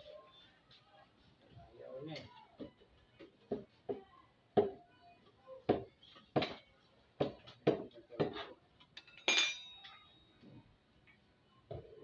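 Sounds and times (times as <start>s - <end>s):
tools striking metal: 9.0s - 10.2s.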